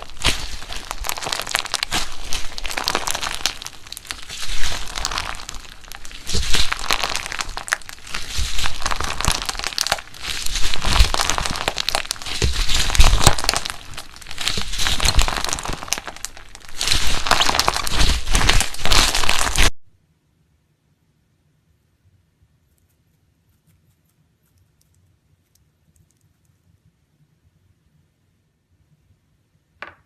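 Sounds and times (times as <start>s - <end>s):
slime squeezed with crackling pops: 0.0s - 19.7s.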